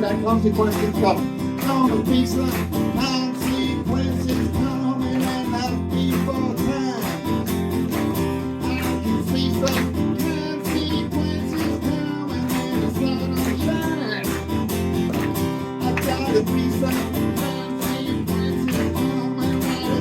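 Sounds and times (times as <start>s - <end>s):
rock band playing: 5.9s - 19.3s.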